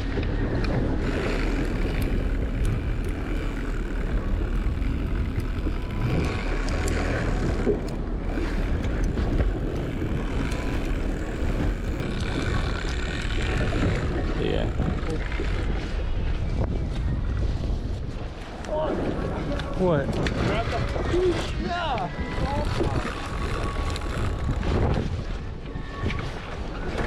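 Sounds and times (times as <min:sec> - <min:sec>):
boat motor running: 0:00.0 - 0:16.4, 0:22.3 - 0:25.7
wind noise on microphone: 0:00.0 - 0:27.0.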